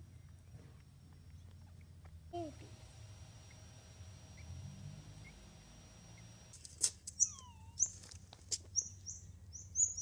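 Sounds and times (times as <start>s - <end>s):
small birds chirping: 3.4s - 6.4s, 7.0s - 10.0s.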